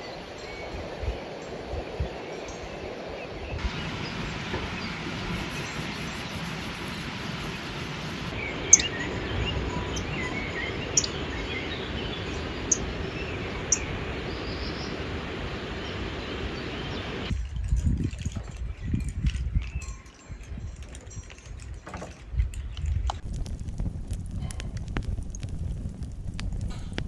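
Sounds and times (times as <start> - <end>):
birds chirping: 3.6 - 17.3
outdoor rushing noise: 3.6 - 17.3
sharp ticks: 4.5 - 15.7.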